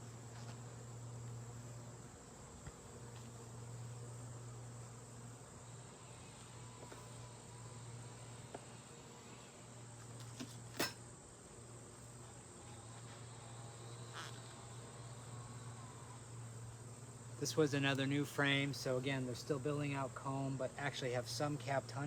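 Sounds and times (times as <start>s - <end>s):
bee buzzing close by: 0.0s - 22.0s
bees humming: 0.0s - 22.0s.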